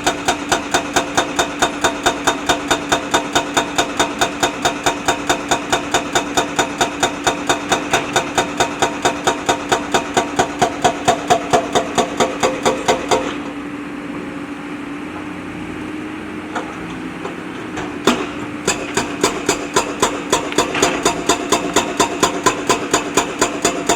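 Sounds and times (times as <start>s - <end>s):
backhoe diesel engine running: 0.0s - 23.9s
sharp regular clatter: 18.1s - 23.9s.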